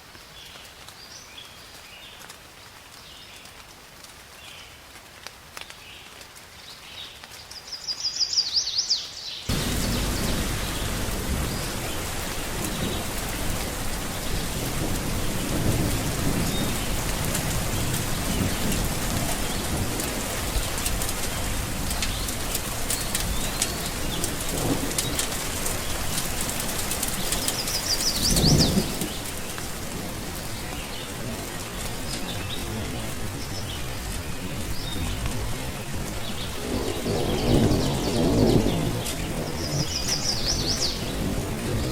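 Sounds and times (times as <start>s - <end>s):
heavy rain: 0.0s - 41.9s
thunder rumbles: 9.5s - 41.9s.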